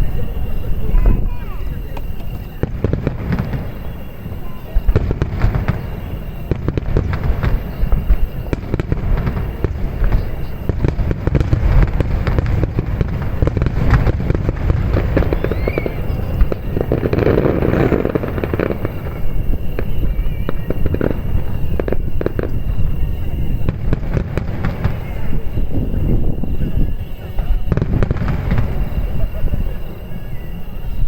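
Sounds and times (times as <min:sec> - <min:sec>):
fireworks bursting: 0:00.0 - 0:31.0.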